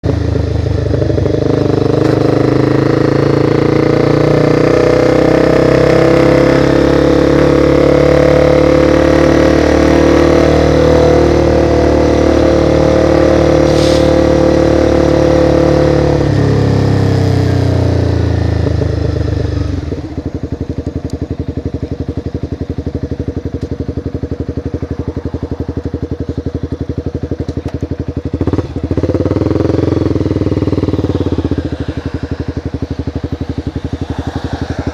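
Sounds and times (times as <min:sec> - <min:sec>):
motorcycle engine idling: 0:00.0 - 0:04.0, 0:17.0 - 0:34.9
motorcycle engine running: 0:00.0 - 0:34.9
rushing air: 0:13.6 - 0:14.6, 0:30.6 - 0:34.9.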